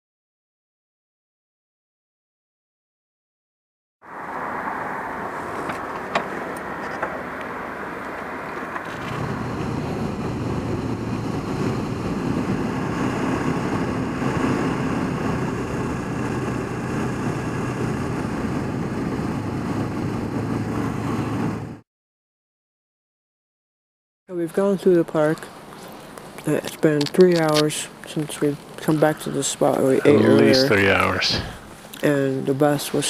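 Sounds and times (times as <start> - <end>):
wind and road noise: 4.0 - 21.8, 24.3 - 33.0
motorcycle engine hum: 4.1 - 21.8.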